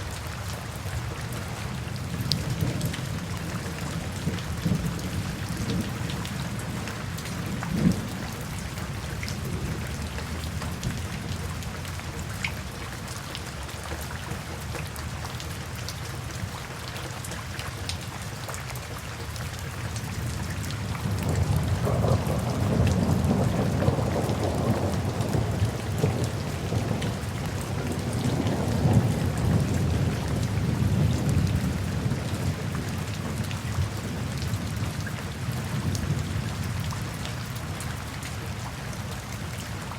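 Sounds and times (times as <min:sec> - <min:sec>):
rain falling: 0:00.0 - 0:39.9
low rumble of thunder: 0:01.8 - 0:12.4, 0:20.1 - 0:38.4.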